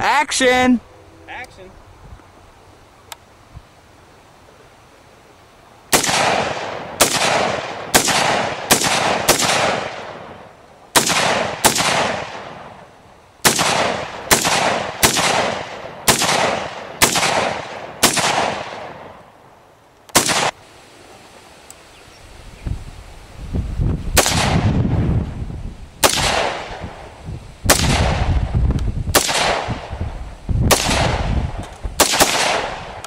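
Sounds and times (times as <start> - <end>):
gunshots with rolling echo: 5.9 - 19.2, 20.1 - 20.6, 24.2 - 25.1, 26.0 - 27.1, 27.7 - 33.0.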